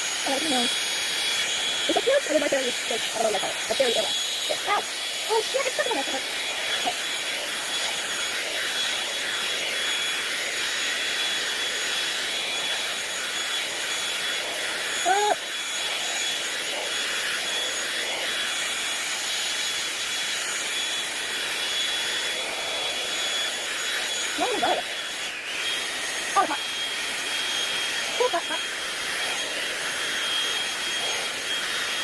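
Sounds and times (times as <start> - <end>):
hot-air brush blowing: 0.0 - 32.0
person exclaiming: 15.0 - 15.4, 28.2 - 28.6.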